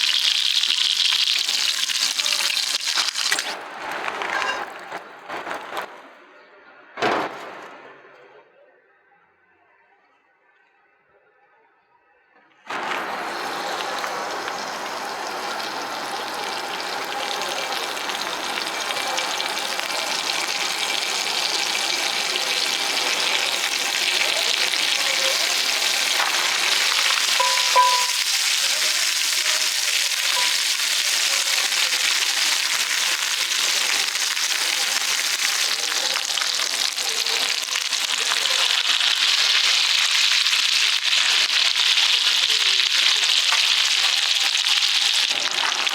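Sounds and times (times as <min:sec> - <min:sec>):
steak sizzling over fire: 0:00.0 - 0:03.6, 0:12.7 - 0:45.9.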